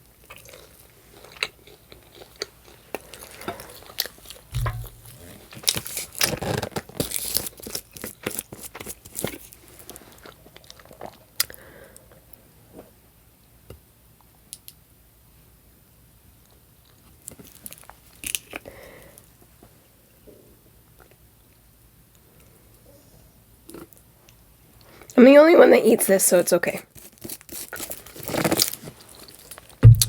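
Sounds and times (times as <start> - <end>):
low bump: 4.6 - 5.3.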